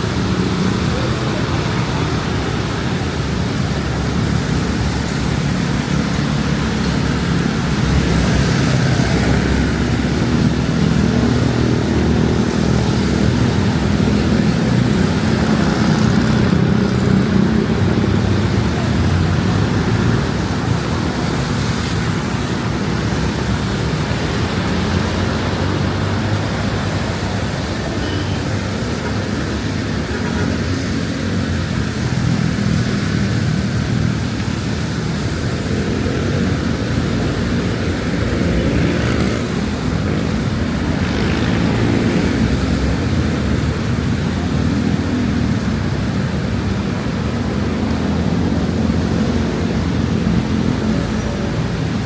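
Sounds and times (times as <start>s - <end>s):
rain hiss: 0.0s - 52.0s
road traffic rumble: 0.0s - 52.0s.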